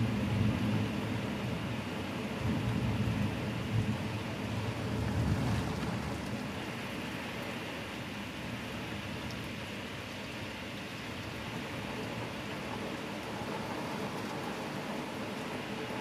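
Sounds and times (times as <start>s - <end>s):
low rumble of thunder: 0.0s - 6.8s, 11.2s - 16.0s
heavy rain hissing: 0.0s - 16.0s.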